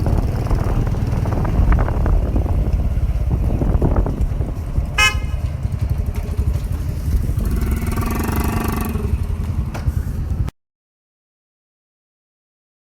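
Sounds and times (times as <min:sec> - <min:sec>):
pitched hum: 0:00.0 - 0:07.6
motorcycle engine rumble: 0:00.0 - 0:10.5
wind buffeting microphone: 0:00.0 - 0:10.5
horn toot: 0:04.9 - 0:05.6.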